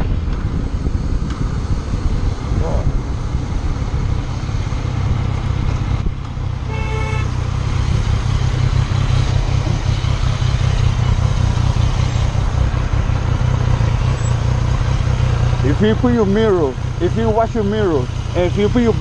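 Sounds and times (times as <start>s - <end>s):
car rumbling on road: 0.0s - 19.0s
car horn honk: 6.6s - 7.4s.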